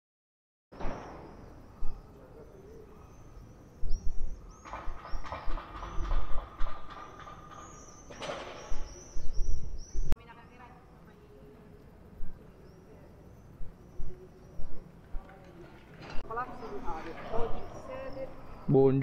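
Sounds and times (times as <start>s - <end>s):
birds chirping: 0.8s - 18.8s
wind on microphone: 3.7s - 7.7s, 8.3s - 10.2s.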